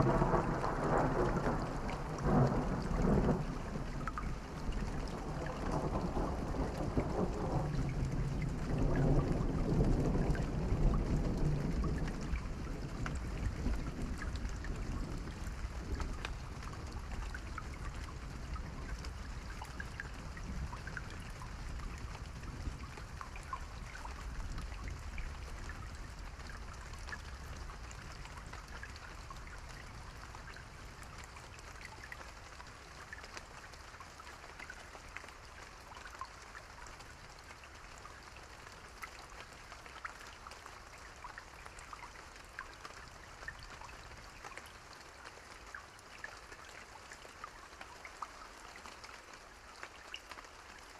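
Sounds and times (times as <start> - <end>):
distant thunder rumble: 0.0 - 12.4
steady rain: 0.0 - 50.9.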